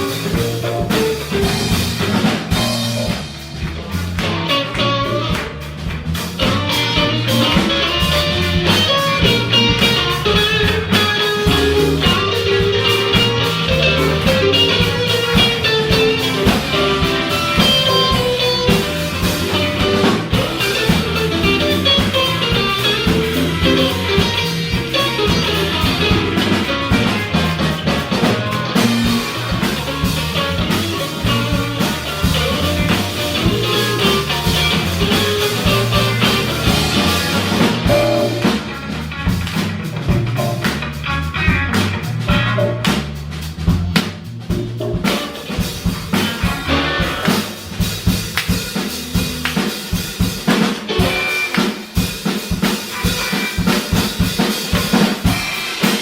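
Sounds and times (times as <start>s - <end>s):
funk band playing: 0.0s - 56.0s
snare and rimshot hits: 45.0s - 56.0s.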